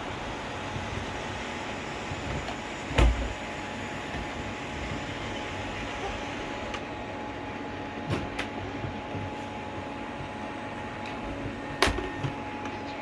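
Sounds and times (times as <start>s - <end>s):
robot vacuum whirring: 0.0s - 7.1s.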